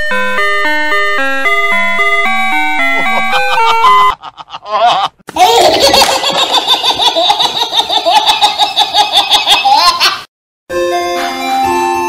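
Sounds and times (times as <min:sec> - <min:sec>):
high-pitched laughter: 0:02.9 - 0:10.3.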